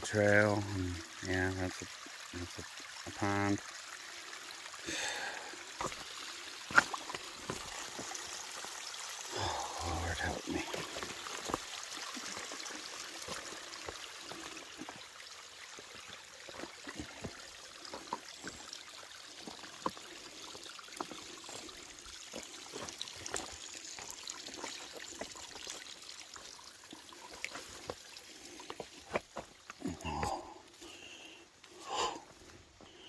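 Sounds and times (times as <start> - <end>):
water trickling: 0.0 - 32.6
footsteps on rock and roots: 5.8 - 8.2, 10.7 - 11.7, 15.8 - 18.8, 21.0 - 25.8, 27.3 - 31.0.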